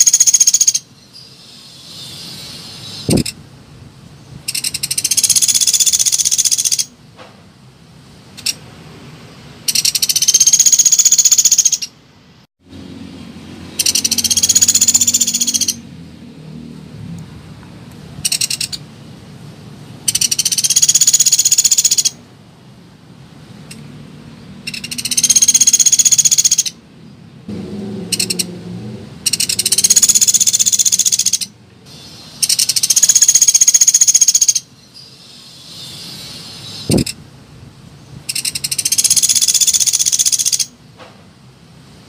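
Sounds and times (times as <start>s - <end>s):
bird chattering trills: 0.0s - 3.4s, 4.5s - 6.9s, 9.6s - 12.0s, 13.7s - 15.8s, 18.2s - 18.8s, 20.1s - 22.2s, 24.6s - 26.8s, 28.1s - 28.5s, 29.2s - 37.2s, 38.3s - 40.7s.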